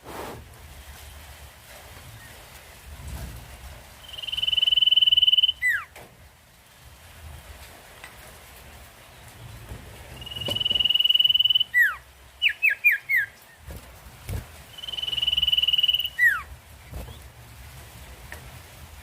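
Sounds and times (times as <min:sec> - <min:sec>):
songbird whistling song: 0:04.0 - 0:05.9, 0:10.1 - 0:13.4, 0:14.7 - 0:16.5.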